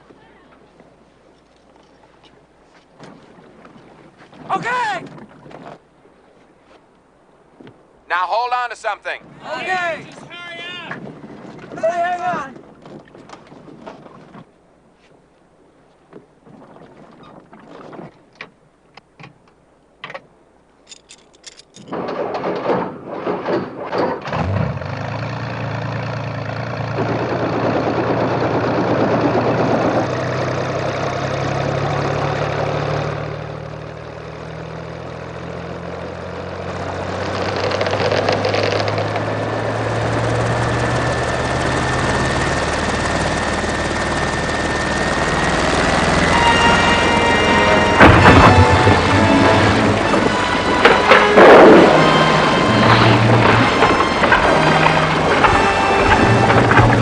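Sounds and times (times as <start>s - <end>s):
helicopter engine and rotor: 39.2s - 56.9s.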